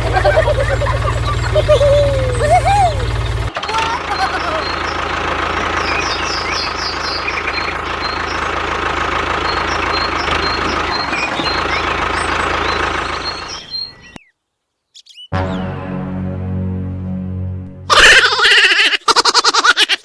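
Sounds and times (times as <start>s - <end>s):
small engine running: 0.0s - 14.2s.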